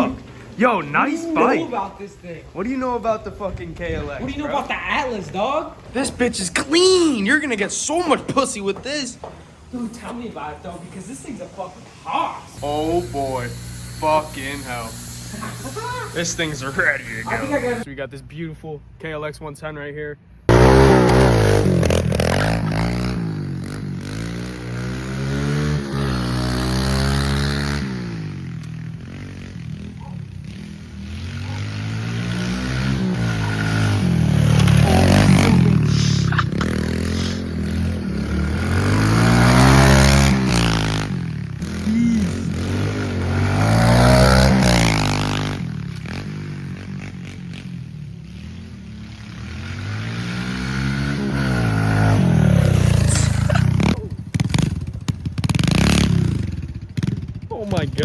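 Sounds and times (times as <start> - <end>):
small motorcycle engine revving: 12.6 - 17.9, 20.5 - 58.0.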